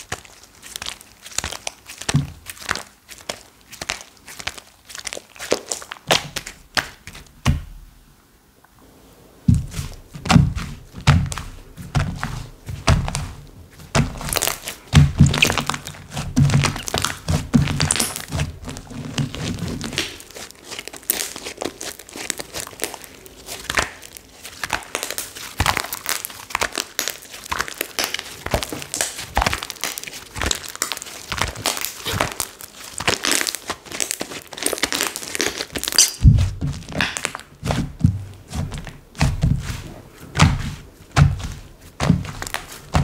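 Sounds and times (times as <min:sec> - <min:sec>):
low thump: 0:09.5 - 0:11.3
slime squishing with clicks and pops: 0:14.0 - 0:18.4, 0:19.8 - 0:37.4.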